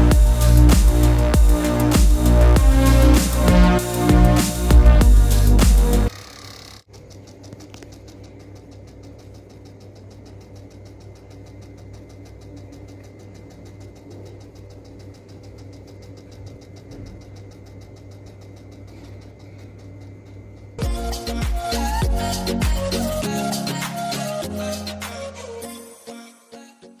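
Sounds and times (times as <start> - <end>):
small electric motor humming: 0.0 - 6.9.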